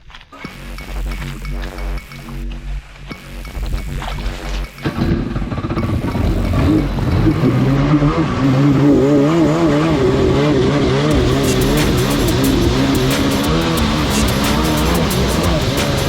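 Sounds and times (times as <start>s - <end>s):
jet ski engine running at high revs: 5.0s - 16.0s.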